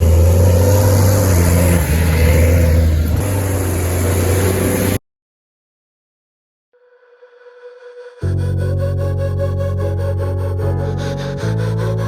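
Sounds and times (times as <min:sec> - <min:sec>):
tractor engine humming: 0:00.0 - 0:05.0.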